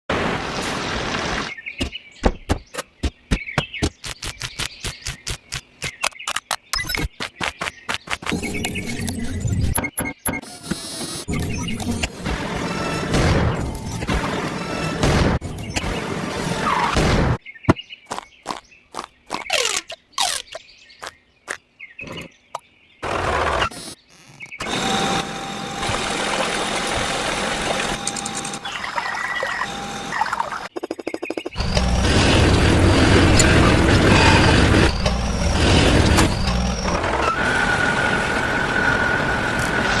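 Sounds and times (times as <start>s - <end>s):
small motor whirring: 23.4s - 28.8s.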